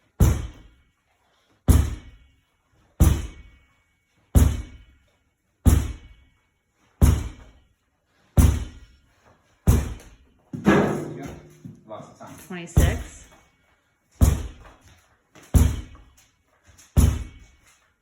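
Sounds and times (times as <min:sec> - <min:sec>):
ball thudding against wall: 0:09.7 - 0:11.8, 0:17.0 - 0:17.5.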